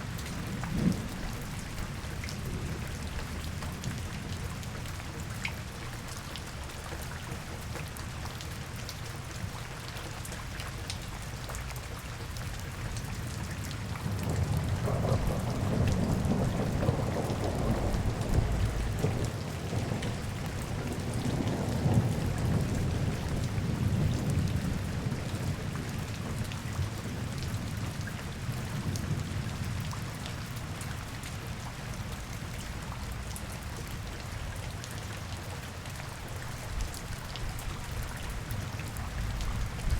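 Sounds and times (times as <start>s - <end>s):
rain pattering: 0.0s - 39.9s
thunder rumbling: 14.0s - 24.9s.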